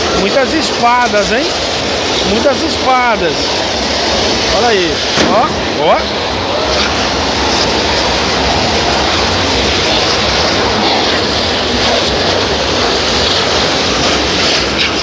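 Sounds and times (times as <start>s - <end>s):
fireworks hissing: 0.4s - 7.5s.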